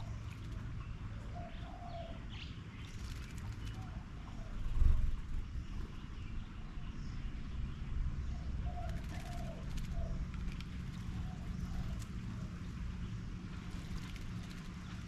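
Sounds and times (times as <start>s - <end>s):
dove cooing: 1.3s - 2.2s, 8.4s - 10.2s, 10.9s - 12.5s.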